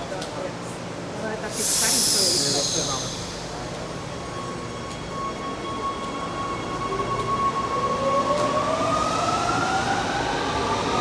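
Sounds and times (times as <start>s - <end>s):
train rumbling: 1.4s - 8.2s.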